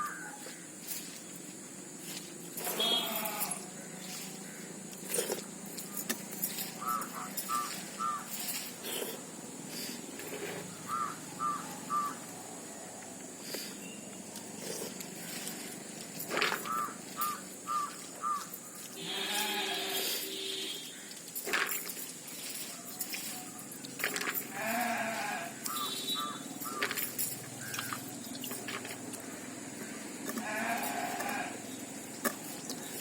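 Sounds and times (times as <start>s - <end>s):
bird chirping: 2.2s - 21.2s, 25.6s - 30.0s
goat bleating: 2.6s - 3.7s, 19.0s - 20.6s, 24.5s - 25.6s, 30.3s - 31.6s
person eating rice: 4.0s - 10.8s, 13.4s - 16.8s.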